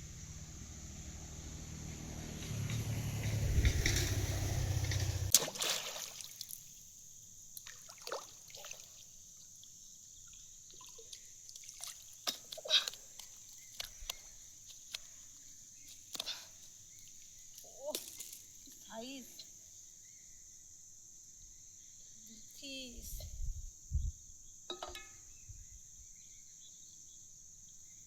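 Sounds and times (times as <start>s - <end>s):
low rumble: 0.0s - 5.3s
water splashing and sloshing: 3.1s - 6.8s, 7.6s - 18.7s.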